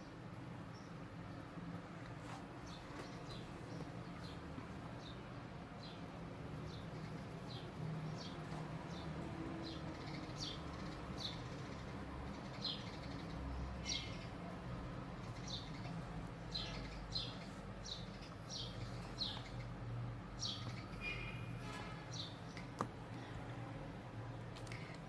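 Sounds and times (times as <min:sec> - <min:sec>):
small bird chirping: 0:15.2 - 0:22.8.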